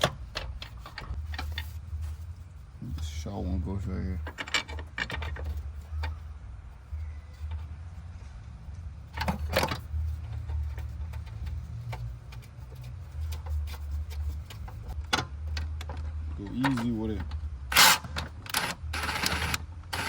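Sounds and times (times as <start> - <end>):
metal clanks and clicks: 4.2 - 6.2.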